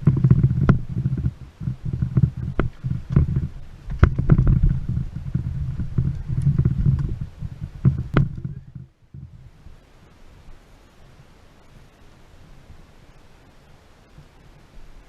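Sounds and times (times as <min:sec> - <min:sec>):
sharp irregular knocks: 0:00.0 - 0:09.3
boat engine rumble: 0:00.0 - 0:15.0.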